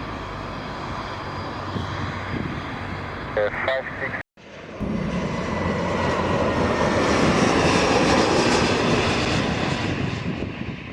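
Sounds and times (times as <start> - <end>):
airplane engine passing: 0.0 - 10.9.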